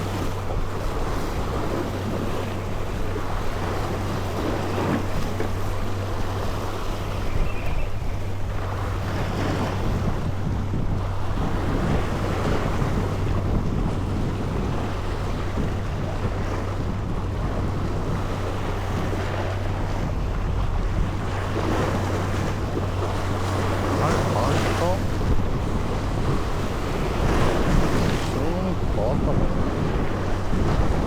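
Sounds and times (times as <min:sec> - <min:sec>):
boat engine droning: 0:00.0 - 0:31.0
rushing water: 0:00.0 - 0:31.0
wind buffeting microphone: 0:00.0 - 0:31.0
short gliding squeaks: 0:07.2 - 0:08.2.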